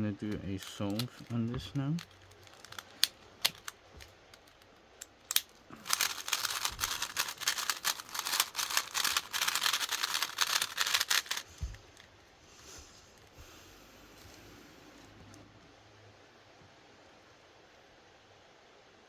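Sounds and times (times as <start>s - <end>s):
puzzle cube plastic clicks: 0.3s - 12.1s
fast clatter of cube turns: 0.6s - 12.1s.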